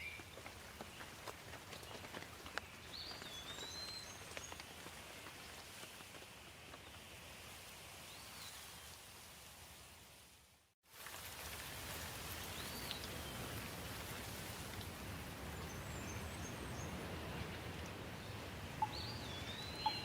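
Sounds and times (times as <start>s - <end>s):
light rain falling: 0.5s - 20.0s
bird chirps: 18.8s - 20.0s.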